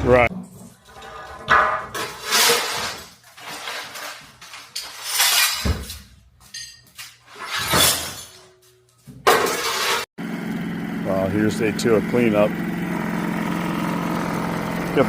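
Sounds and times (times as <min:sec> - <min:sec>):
broken glass crunching and clinking: 0:01.9 - 0:07.0.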